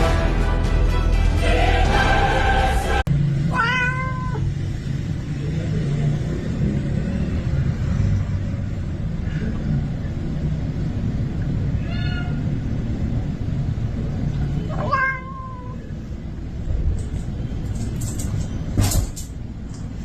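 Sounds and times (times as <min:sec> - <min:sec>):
cat meowing: 0:03.5 - 0:04.5, 0:11.8 - 0:12.5, 0:14.7 - 0:15.9
steady low rumble: 0:07.4 - 0:14.8.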